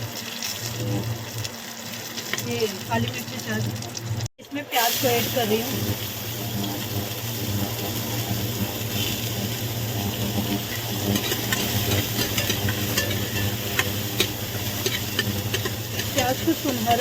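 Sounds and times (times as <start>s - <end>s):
onions sizzling in hot oil: 0.0s - 17.0s
pan being stirred: 0.0s - 17.0s
sharp crackles and clicks: 5.4s - 17.0s.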